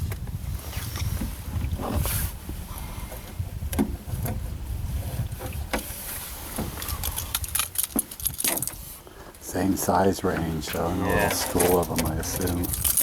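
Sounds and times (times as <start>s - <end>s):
wind buffeting microphone: 0.0s - 13.0s
handling knocks and clicks: 6.5s - 8.9s, 10.3s - 13.0s.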